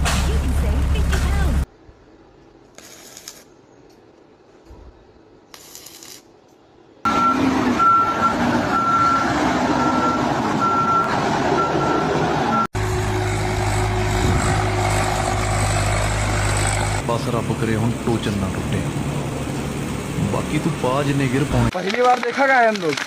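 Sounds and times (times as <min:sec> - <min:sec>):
heavy vehicle engine running: 0:00.0 - 0:01.7, 0:07.1 - 0:21.7
engine drone with low hum: 0:00.0 - 0:02.1, 0:09.8 - 0:21.7
reversing beep: 0:07.1 - 0:09.2, 0:09.8 - 0:12.7.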